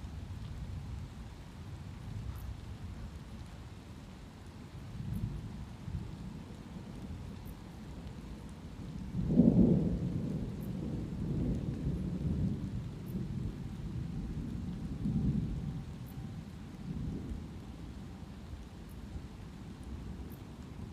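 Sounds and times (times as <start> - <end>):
light rain: 0.0 - 20.9
thunder rumbling: 8.2 - 20.9.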